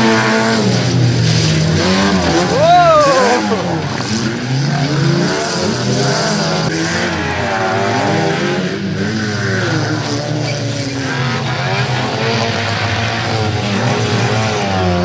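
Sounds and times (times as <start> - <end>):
stock car engines revving: 0.0 - 15.0.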